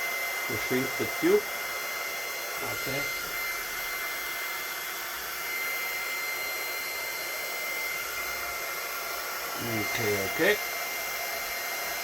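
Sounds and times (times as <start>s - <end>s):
hot-air tool blowing: 0.0s - 12.0s.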